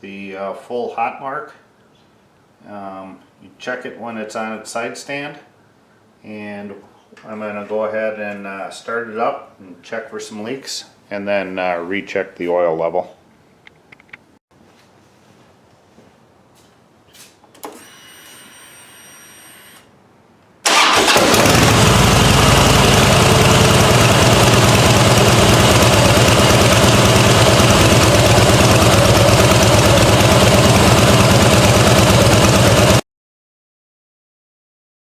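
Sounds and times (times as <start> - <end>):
fuel pump whine: 20.6 - 33.0
motorcycle engine idling: 20.7 - 33.0.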